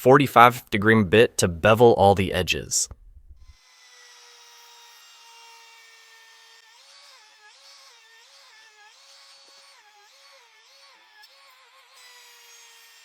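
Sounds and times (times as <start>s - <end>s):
router bit cutting wood: 3.5s - 13.0s.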